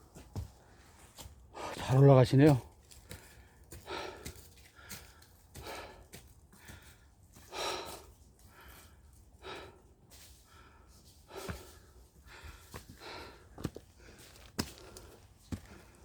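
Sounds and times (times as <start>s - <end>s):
person breathing heavily: 3.0s - 16.0s.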